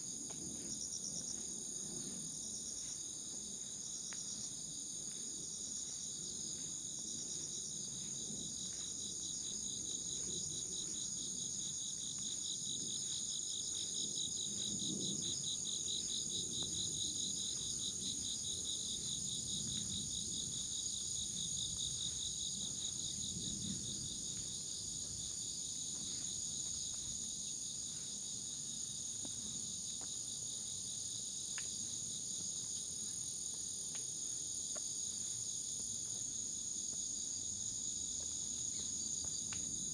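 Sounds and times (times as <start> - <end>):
footsteps on forest path: 0.2 - 14.7, 15.9 - 30.3, 32.4 - 39.5
insects trilling: 5.8 - 19.2.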